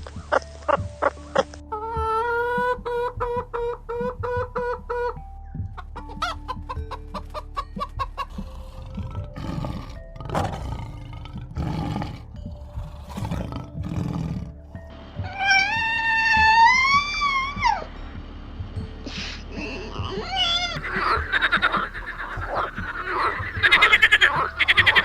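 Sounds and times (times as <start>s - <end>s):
soft background music: 0.0s - 25.0s
animal calls: 5.8s - 14.6s, 15.2s - 17.9s, 19.5s - 25.0s.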